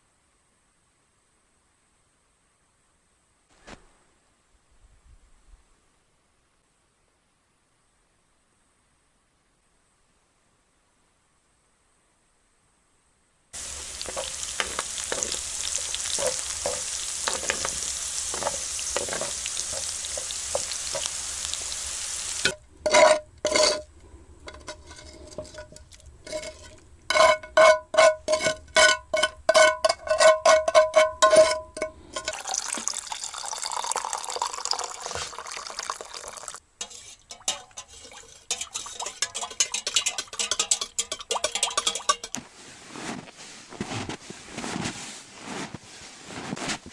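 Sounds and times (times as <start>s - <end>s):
food sizzling in a pan: 13.6s - 23.8s, 32.2s - 40.8s.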